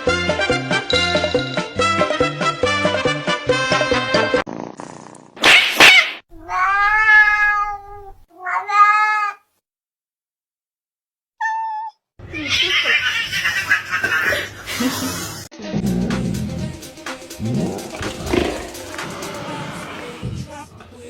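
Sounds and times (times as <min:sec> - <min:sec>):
cat meowing: 0:06.4 - 0:09.5, 0:11.4 - 0:12.7.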